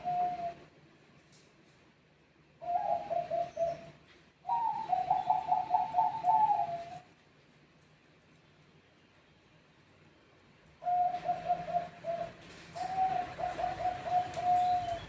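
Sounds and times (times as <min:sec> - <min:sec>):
dove cooing: 0:00.0 - 0:00.7, 0:02.6 - 0:07.1, 0:10.8 - 0:15.0.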